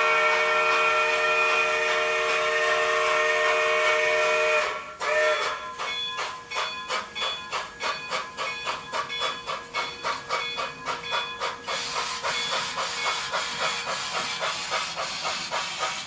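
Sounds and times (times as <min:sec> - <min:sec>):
model steam locomotive chuffs: 0:00.0 - 0:16.0
steam hissing: 0:00.0 - 0:16.0.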